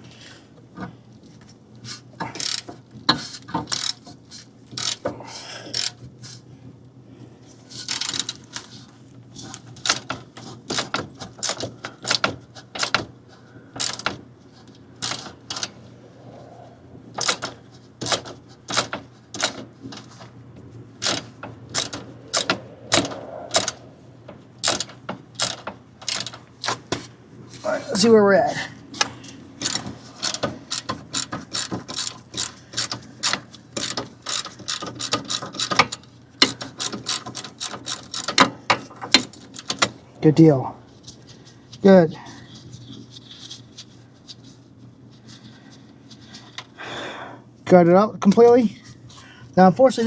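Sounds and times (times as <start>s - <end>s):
ratchet wrench clicking: 2.3s - 2.7s, 3.6s - 4.0s, 4.8s - 5.0s, 5.7s - 6.0s, 7.9s - 8.7s, 13.8s - 14.1s, 24.6s - 26.8s, 29.6s - 38.4s.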